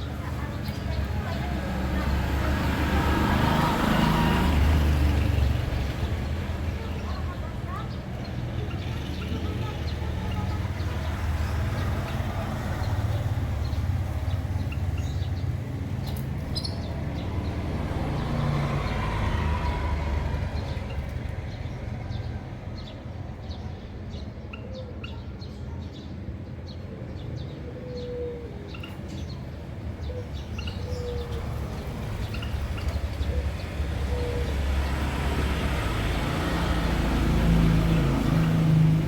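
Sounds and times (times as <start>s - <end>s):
finches chirping: 12.8s - 17.6s, 27.4s - 34.8s.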